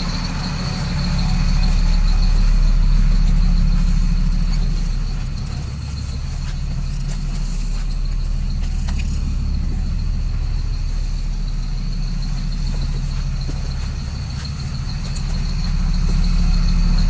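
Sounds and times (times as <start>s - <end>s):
diesel bus engine running: 0.0s - 17.0s.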